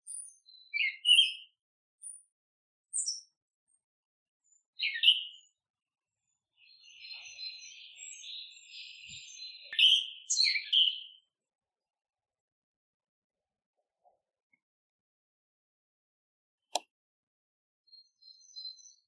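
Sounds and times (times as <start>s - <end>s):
small songbirds chirping: 0.0s - 3.8s, 4.4s - 11.6s, 17.8s - 19.0s.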